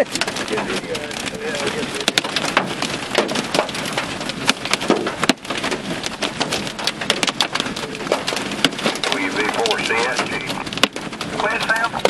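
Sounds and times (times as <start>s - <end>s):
hail pelting a vehicle: 0.0s - 12.0s
heavy rain: 0.0s - 12.0s.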